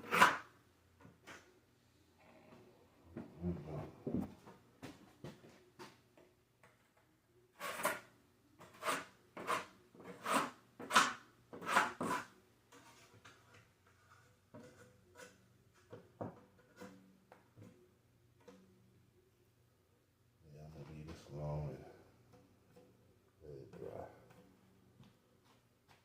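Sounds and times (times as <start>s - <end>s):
drywall knife scraping: 0.0s - 0.5s, 7.6s - 16.0s.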